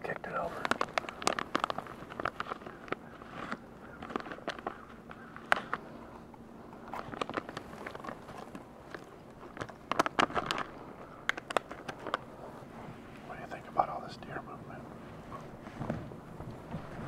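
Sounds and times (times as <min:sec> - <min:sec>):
person crunching a snack: 0:00.6 - 0:05.8, 0:06.8 - 0:12.3.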